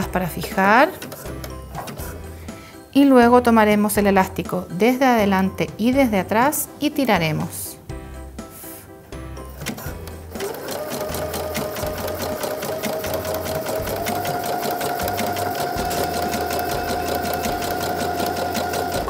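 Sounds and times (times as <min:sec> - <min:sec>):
sewing machine stitching: 0:00.5 - 0:02.2, 0:09.6 - 0:19.0.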